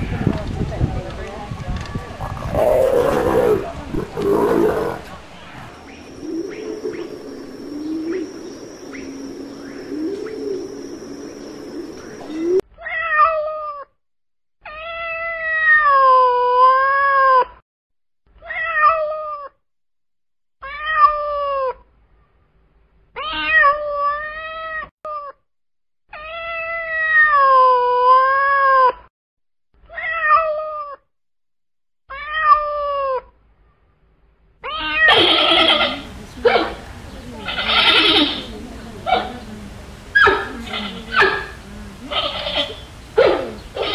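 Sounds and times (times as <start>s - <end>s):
loud animal call: 2.2s - 5.2s, 34.6s - 36.8s, 37.4s - 39.4s, 40.2s - 43.9s
pigeon cooing: 2.2s - 5.2s, 6.1s - 12.6s, 35.1s - 43.9s
cat meowing: 29.9s - 31.0s, 32.1s - 33.2s, 34.6s - 36.0s, 42.1s - 43.9s.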